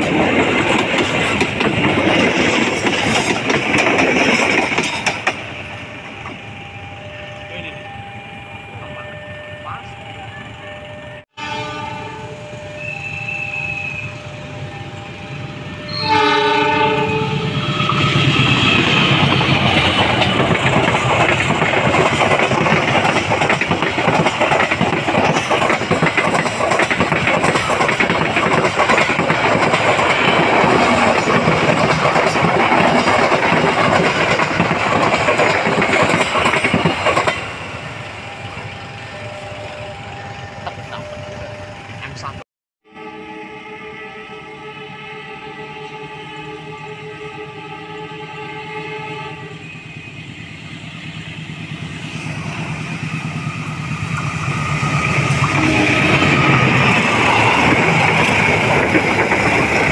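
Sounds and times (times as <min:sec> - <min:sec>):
train passing with clattering wheels: 0:00.0 - 0:42.4, 0:44.3 - 0:59.9
train horn: 0:06.6 - 0:17.9, 0:42.8 - 0:50.3, 0:55.4 - 0:56.9.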